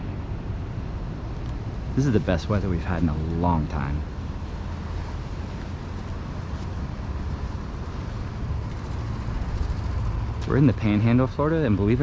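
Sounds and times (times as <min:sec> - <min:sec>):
low rumble: 0:00.0 - 0:12.0
wind noise on microphone: 0:03.6 - 0:12.0.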